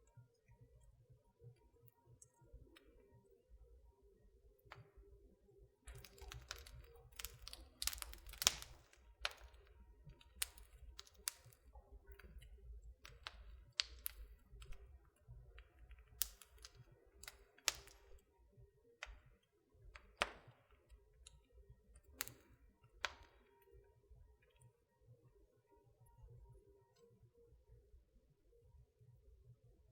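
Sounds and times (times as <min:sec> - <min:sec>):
wood fire crackling: 0:05.9 - 0:18.3, 0:19.0 - 0:23.6.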